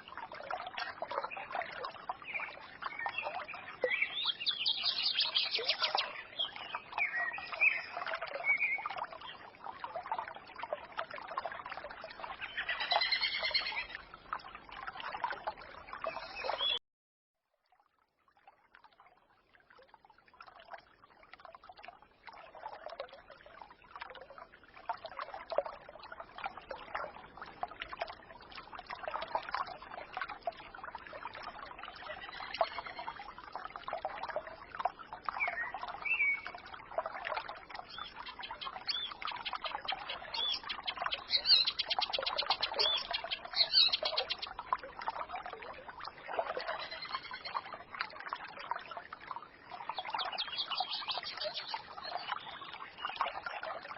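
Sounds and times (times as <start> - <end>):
forest stream trickling: 0.0 - 16.8, 17.4 - 53.9
songbirds singing: 1.2 - 9.5, 12.3 - 14.0, 16.0 - 16.8, 32.0 - 33.2, 35.3 - 36.6, 37.8 - 44.6, 46.6 - 47.7, 49.8 - 53.6.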